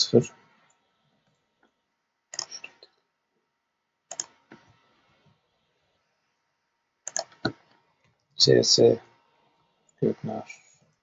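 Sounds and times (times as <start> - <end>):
computer keys and mouse clicks: 0.6 - 3.0, 4.1 - 4.8, 7.0 - 8.2.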